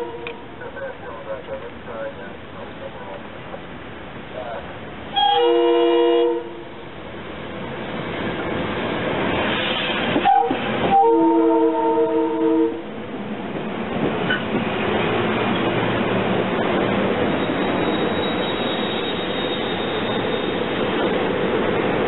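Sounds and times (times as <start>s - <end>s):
train chord horn: 0.0s - 0.6s, 5.1s - 6.8s, 10.2s - 12.8s
train wheels rolling: 7.2s - 11.1s, 13.0s - 22.0s
high squeal: 17.2s - 21.1s.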